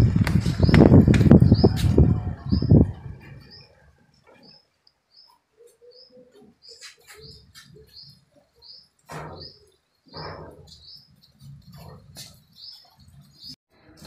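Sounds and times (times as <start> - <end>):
loud rushing noises: 0.0 - 3.5
small bird chirping: 3.4 - 13.6.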